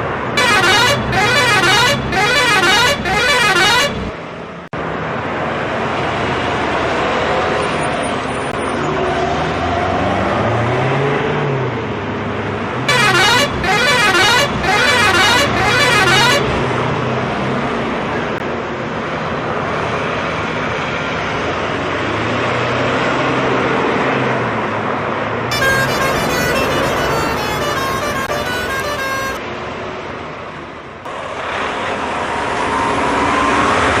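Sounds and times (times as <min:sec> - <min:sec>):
truck engine revving: 0:00.4 - 0:04.1, 0:12.9 - 0:16.8, 0:25.5 - 0:29.4
truck horn honks: 0:00.4 - 0:04.2, 0:12.9 - 0:16.7, 0:25.5 - 0:29.4.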